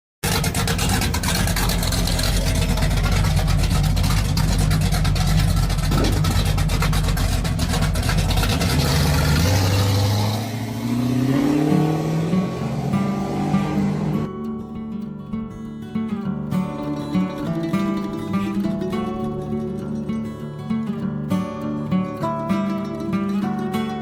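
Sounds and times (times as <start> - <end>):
car engine running loudly: 0.2 - 14.3
rising pitched tones: 8.8 - 14.3.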